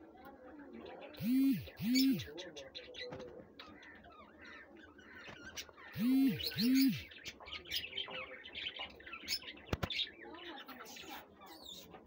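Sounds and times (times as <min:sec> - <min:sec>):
low coo-like bird calls: 0:00.9 - 0:10.0
birds chirping and whistling: 0:01.2 - 0:02.4, 0:05.6 - 0:09.9.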